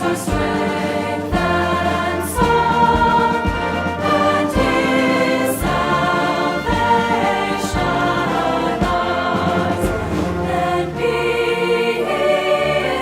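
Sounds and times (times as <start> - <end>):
instrumental accompaniment: 0.0 - 13.0
voices singing together: 0.0 - 13.0.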